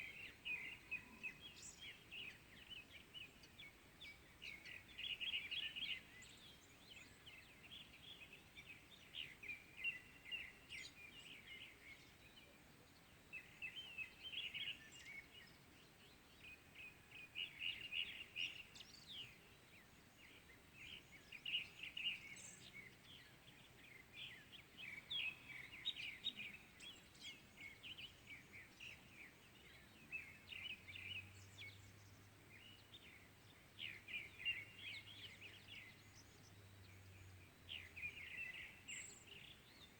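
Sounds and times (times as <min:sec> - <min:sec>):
faint high bird chirps: 0:00.0 - 0:19.6.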